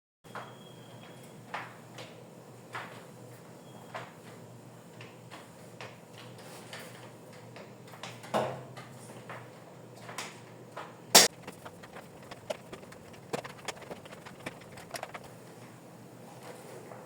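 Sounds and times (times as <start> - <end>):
kitchen items knocking and clicking: 11.2 - 15.3.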